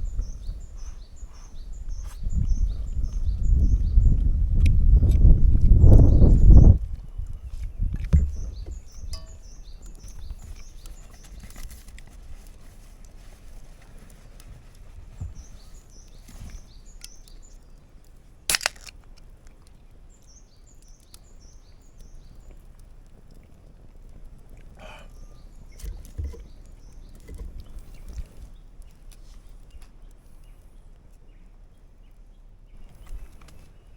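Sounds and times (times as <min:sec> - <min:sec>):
songbird chirping: 0:07.7 - 0:11.7
sharp crack: 0:18.5 - 0:19.3.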